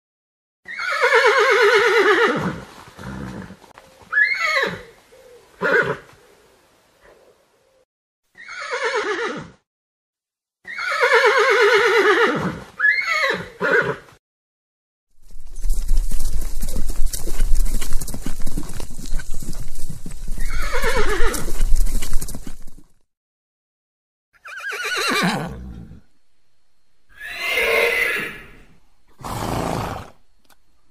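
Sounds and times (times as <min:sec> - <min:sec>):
horse whinnying: 0:00.6 - 0:05.0, 0:05.6 - 0:06.1, 0:08.4 - 0:09.6, 0:10.6 - 0:14.1, 0:20.4 - 0:22.3, 0:24.4 - 0:26.1, 0:27.1 - 0:30.2
horse hoofbeats: 0:02.3 - 0:05.0, 0:15.2 - 0:23.0.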